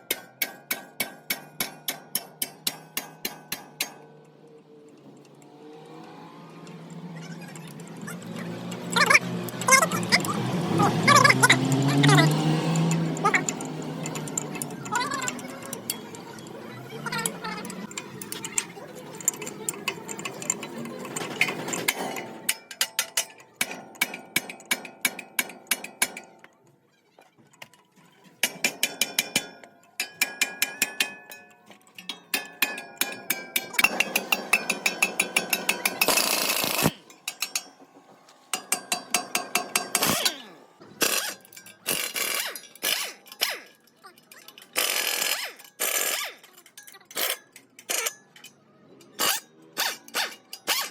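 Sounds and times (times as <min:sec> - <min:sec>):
metal tools clicking and tapping: 0:00.0 - 0:50.9
harsh metal rasp: 0:49.1 - 0:50.9.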